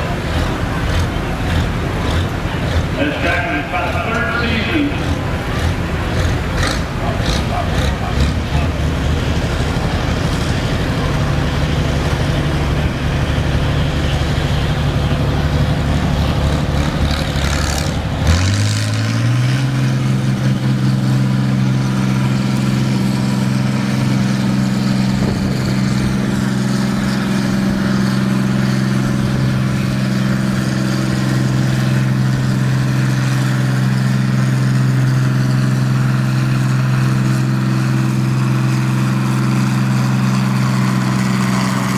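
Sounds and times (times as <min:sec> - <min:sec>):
tractor engine revving: 0:00.0 - 0:41.9.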